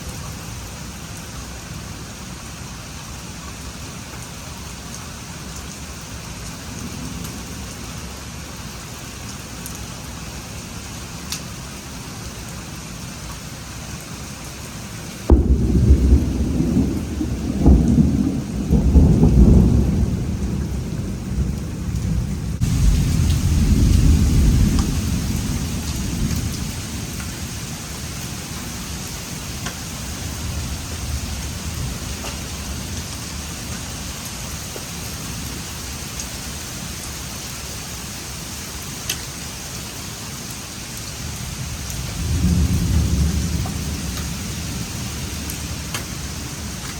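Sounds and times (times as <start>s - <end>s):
steady rain: 0.0s - 46.9s
rolling thunder: 15.3s - 28.9s, 41.6s - 46.6s.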